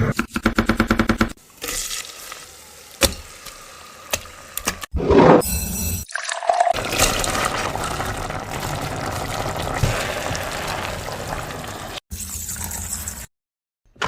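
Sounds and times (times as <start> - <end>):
water pouring into pot: 6.1 - 13.2.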